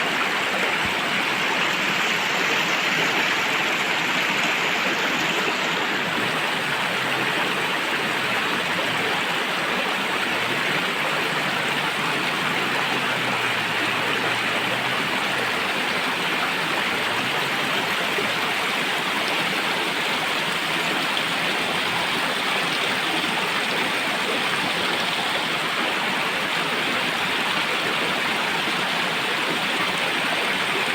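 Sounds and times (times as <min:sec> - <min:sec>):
stream rushing over rocks: 0:00.0 - 0:30.9.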